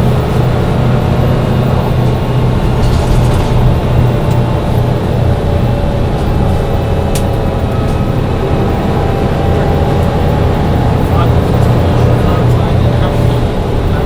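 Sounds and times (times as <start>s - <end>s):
diesel bus engine drone: 0.0s - 14.0s.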